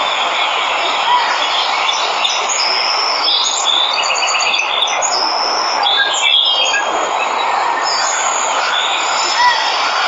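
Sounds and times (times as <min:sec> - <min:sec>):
birds chirping: 0:00.0 - 0:10.0
waterfall rushing: 0:06.9 - 0:10.0.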